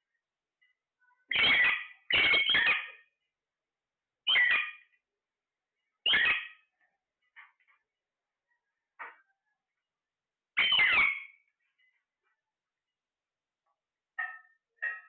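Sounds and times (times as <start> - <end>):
parrot squawking: 1.3 - 3.0, 4.3 - 4.8, 6.0 - 6.6, 10.6 - 11.4.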